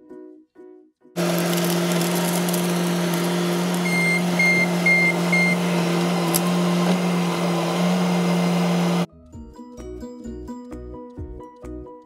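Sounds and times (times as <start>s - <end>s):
diesel engine running: 1.2s - 9.1s.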